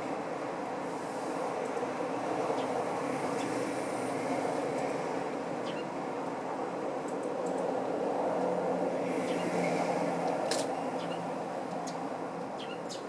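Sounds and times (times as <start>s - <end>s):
rumble of vehicle or train: 0.0s - 13.0s
sparrow chirps: 5.6s - 5.9s, 11.0s - 11.2s, 12.6s - 13.0s.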